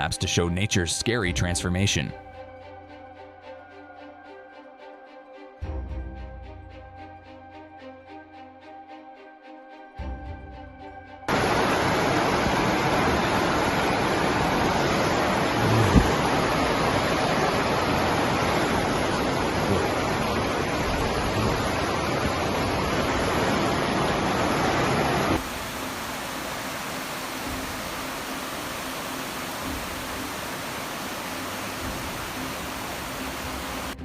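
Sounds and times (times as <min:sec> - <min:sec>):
rushing water: 0:11.3 - 0:34.0.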